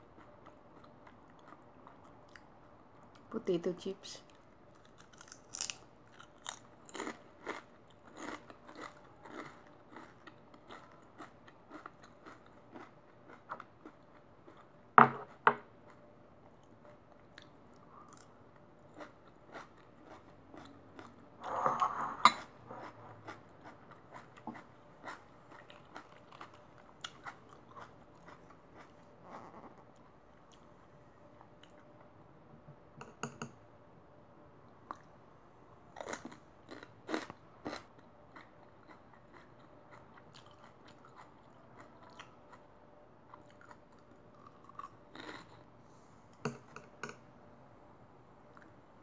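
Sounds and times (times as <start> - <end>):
chewing crisp potato chips: 0.0 - 3.3, 4.3 - 21.4, 22.4 - 30.7, 35.9 - 45.7.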